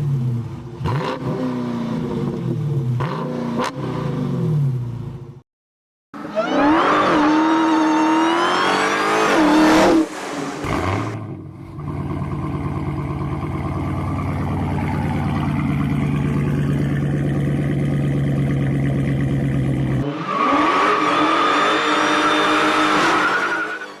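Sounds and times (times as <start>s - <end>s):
car engine exhaust revving: 6.4s - 23.0s.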